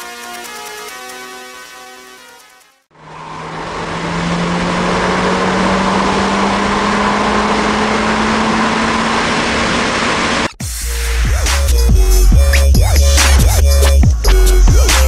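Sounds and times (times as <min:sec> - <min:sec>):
road and wind noise: 0:02.9 - 0:10.5
car engine under full load: 0:02.9 - 0:10.6.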